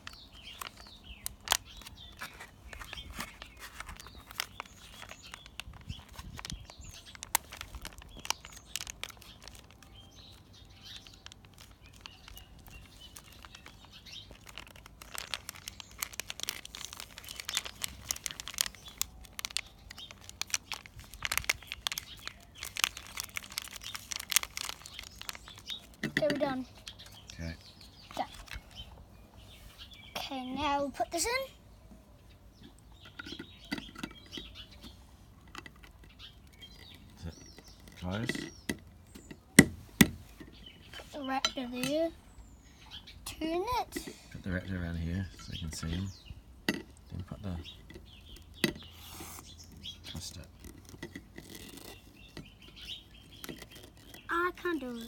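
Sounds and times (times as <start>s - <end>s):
plastic packet crinkling: 0.0s - 27.5s, 50.4s - 55.0s.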